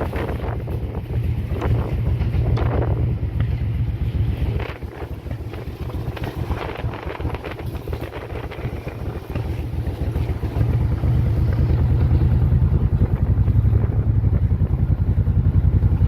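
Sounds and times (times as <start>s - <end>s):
motorcycle engine running: 0.0s - 16.0s
wind rush on microphone: 0.0s - 16.0s.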